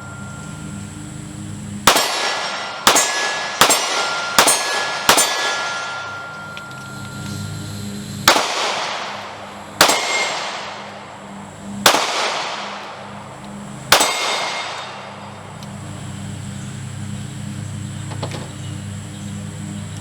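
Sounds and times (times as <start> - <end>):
steel target ringing: 0.0 - 1.0, 1.8 - 7.6, 8.2 - 11.0, 13.9 - 15.4
pistol shots echoing: 1.8 - 7.0, 8.2 - 11.1, 11.8 - 13.2, 13.9 - 15.4.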